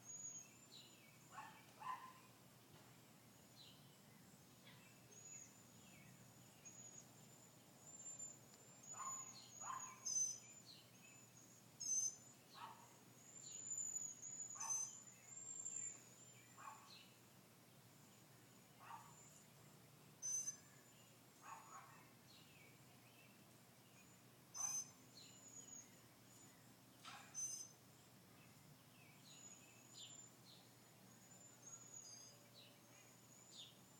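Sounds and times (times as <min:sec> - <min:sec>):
low background hiss: 0:00.0 - 0:33.9
bird chirps sliding downward: 0:20.2 - 0:20.6, 0:27.3 - 0:27.8.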